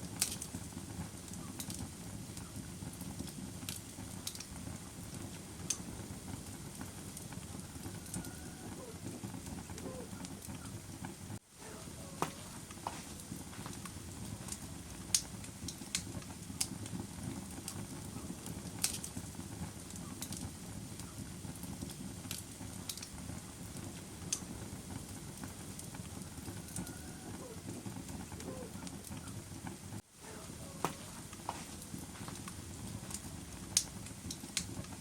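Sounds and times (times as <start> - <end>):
sharp pops of burning wood: 0.0 - 11.4, 12.1 - 27.0, 30.7 - 35.0
bonfire crackling: 0.0 - 35.0.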